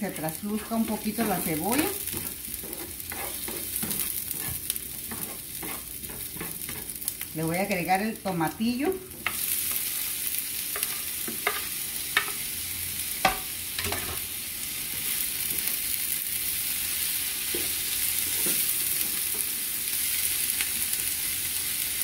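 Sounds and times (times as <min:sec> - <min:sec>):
vegetables sizzling in oil: 0:00.0 - 0:22.0
spatula knocking and scraping pan: 0:00.2 - 0:07.2, 0:09.1 - 0:09.9, 0:10.7 - 0:12.4, 0:13.2 - 0:14.2.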